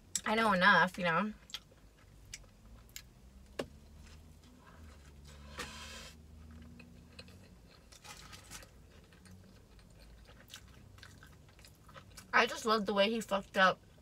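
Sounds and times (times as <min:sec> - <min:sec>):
crunching fried chicken: 0:06.5 - 0:12.3.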